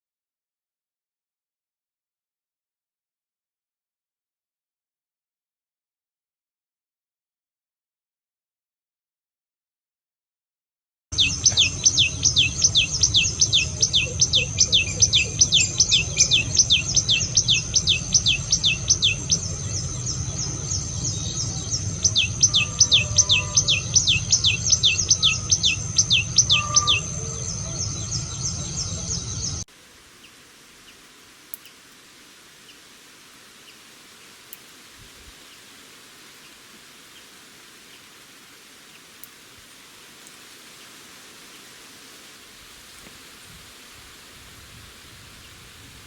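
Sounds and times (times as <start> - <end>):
songbird down-slurred notes: 11.2 - 29.6
steady low rumble: 11.2 - 29.7
faint hiss: 28.6 - 46.0
small ticks: 31.5 - 31.8, 34.5 - 34.8, 38.8 - 39.4, 40.2 - 40.6.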